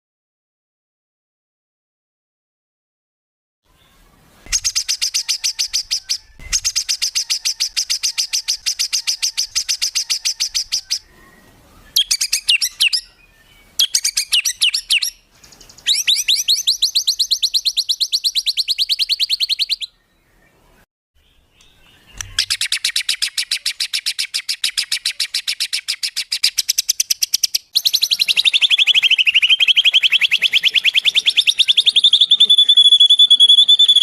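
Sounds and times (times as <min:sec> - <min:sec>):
songbird rattling trills: 0:04.5 - 0:11.1, 0:13.7 - 0:19.9, 0:21.7 - 0:34.0.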